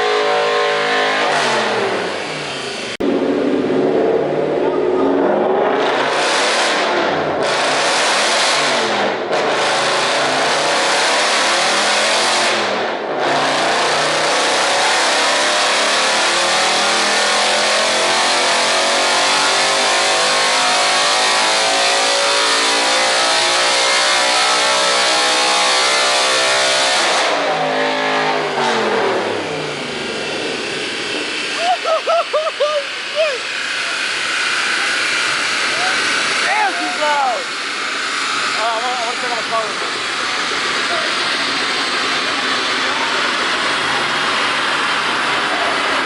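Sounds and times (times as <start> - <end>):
car engine revving hard: 0.0 - 46.0.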